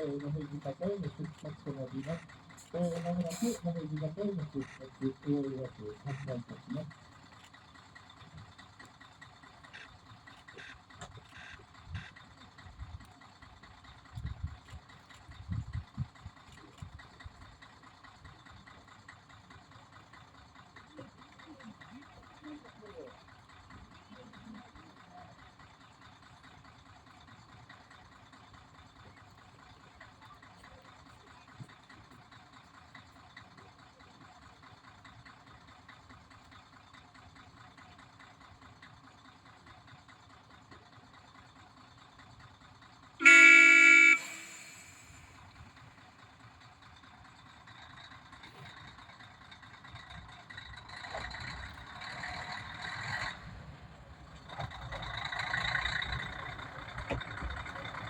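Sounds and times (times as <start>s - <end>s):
diesel engine idling: 0.0s - 58.0s
train horn blast: 43.2s - 45.2s.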